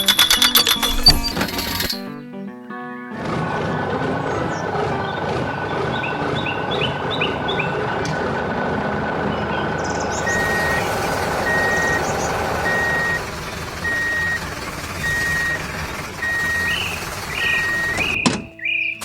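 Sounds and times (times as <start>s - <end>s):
heavy vehicle engine rumble: 3.2s - 18.5s
reversing alarm beeping: 9.4s - 18.3s.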